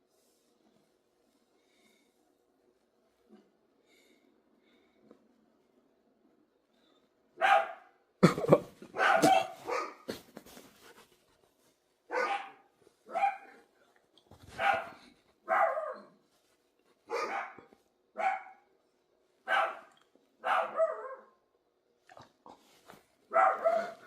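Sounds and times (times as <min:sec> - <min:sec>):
dog barking: 0:07.4 - 0:08.0, 0:08.9 - 0:10.2, 0:12.1 - 0:13.7, 0:14.5 - 0:16.1, 0:17.1 - 0:18.7, 0:19.4 - 0:21.4, 0:23.3 - 0:24.0.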